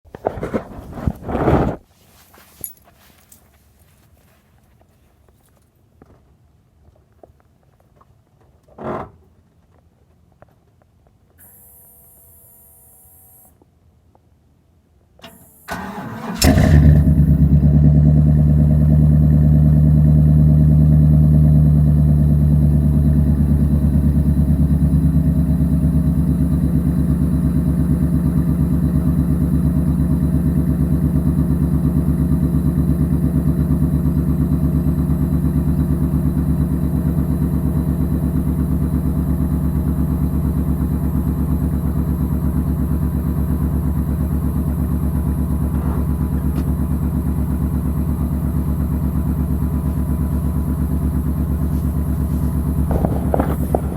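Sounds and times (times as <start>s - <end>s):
pickup engine idling: 15.2s - 53.9s.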